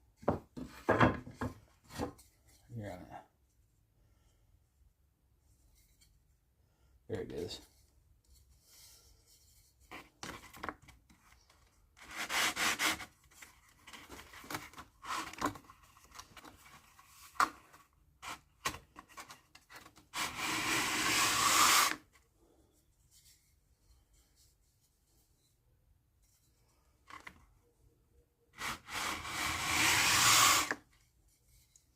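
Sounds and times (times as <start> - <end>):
wood sanded by hand: 12.0 - 13.0, 20.2 - 22.0, 28.6 - 30.8.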